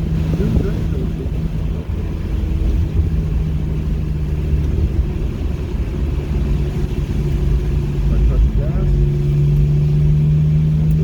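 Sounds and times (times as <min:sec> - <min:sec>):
car engine running: 0:00.0 - 0:11.0
road and tyre rumble: 0:00.0 - 0:11.0.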